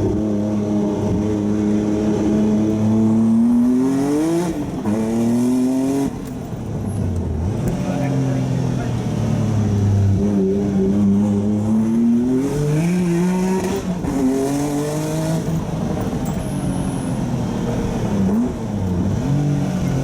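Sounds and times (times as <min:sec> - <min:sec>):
car engine accelerating hard: 0:07.0 - 0:20.0.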